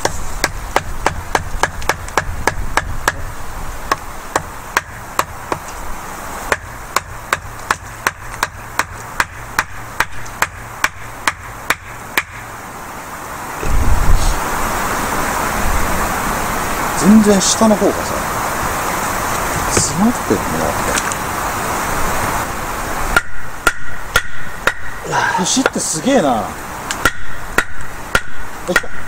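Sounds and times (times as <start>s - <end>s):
sharp knocks: 0.0s - 3.3s, 6.5s - 12.5s, 23.2s - 25.0s, 27.0s - 29.0s.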